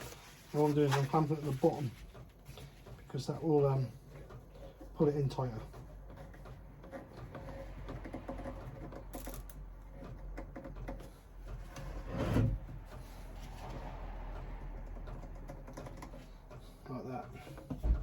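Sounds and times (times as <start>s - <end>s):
clamp clicking and rubbing: 4.0s - 18.0s
clamp clunk: 17.7s - 18.0s.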